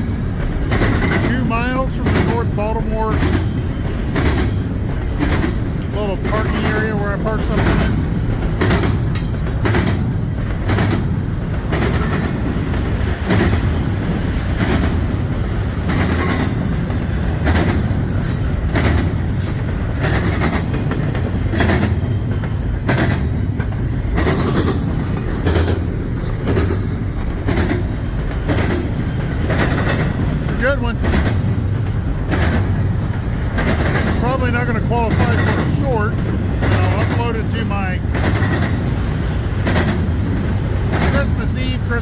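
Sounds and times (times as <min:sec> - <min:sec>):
freight train rumble: 0:00.0 - 0:42.0
wheels clacking over rail joints: 0:00.0 - 0:42.0.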